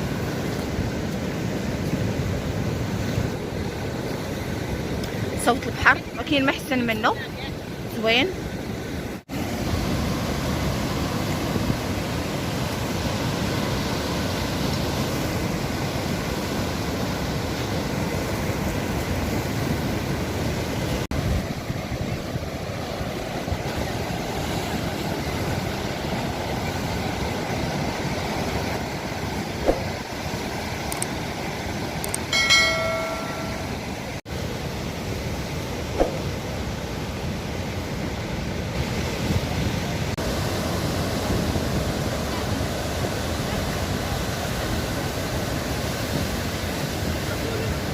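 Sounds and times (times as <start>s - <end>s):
sea waves washing on shore: 0.0s - 47.9s
short pitched tone: 32.3s - 33.9s.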